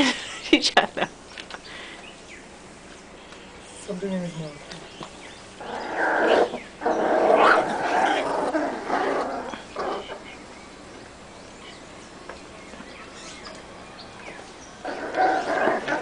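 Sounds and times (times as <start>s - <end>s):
puppies growling and barking: 5.6s - 10.5s, 14.8s - 16.0s.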